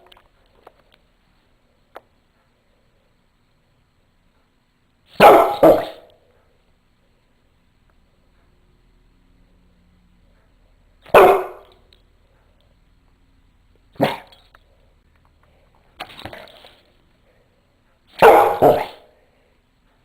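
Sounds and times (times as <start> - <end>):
dog barking: 5.2 - 6.1, 11.1 - 11.8, 14.0 - 14.3, 18.2 - 19.1.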